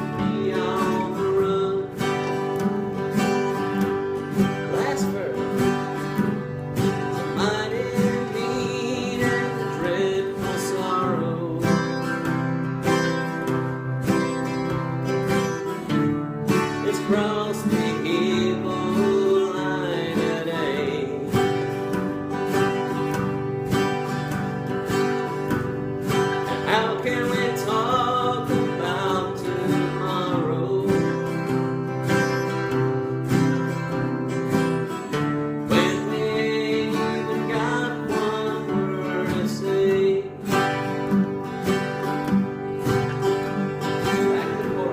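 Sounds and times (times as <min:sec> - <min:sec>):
country acoustic guitar: 0:00.0 - 0:44.9.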